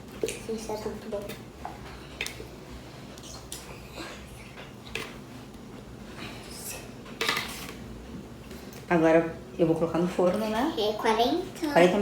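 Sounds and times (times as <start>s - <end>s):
kitchen things scraping and rustling: 7.0s - 7.9s.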